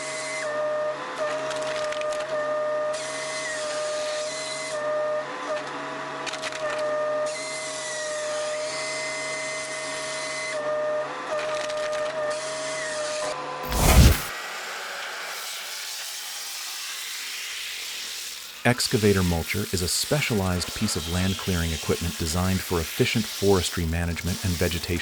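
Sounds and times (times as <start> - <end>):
harsh hiss: 13.7 - 25.0.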